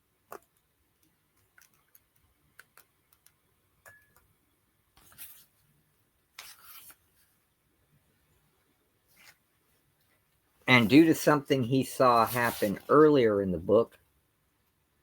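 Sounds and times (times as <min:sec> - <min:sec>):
comic book pages turning: 0:05.0 - 0:05.6, 0:06.3 - 0:07.3, 0:12.0 - 0:13.2.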